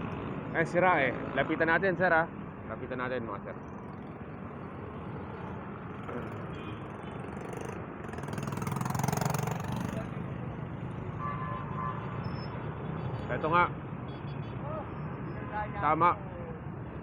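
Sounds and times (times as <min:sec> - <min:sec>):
road traffic noise: 0:00.0 - 0:17.0
vehicle passing close: 0:02.4 - 0:11.1.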